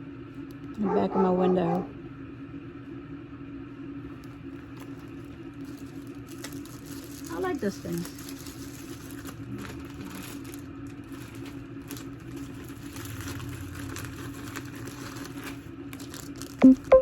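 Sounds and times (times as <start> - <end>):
steady low hum: 0.0 - 17.0
handling clicks and crinkles: 4.1 - 17.0.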